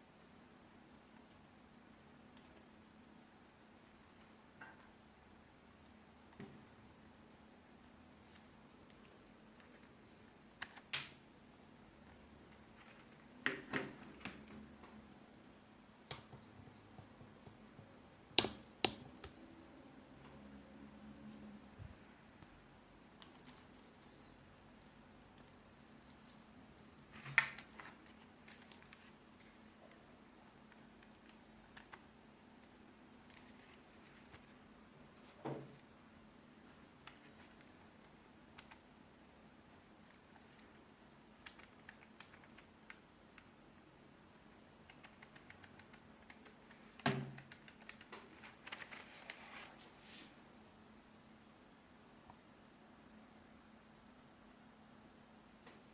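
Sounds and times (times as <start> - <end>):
keyboard keystrokes: 16.1 - 19.4, 44.9 - 48.9.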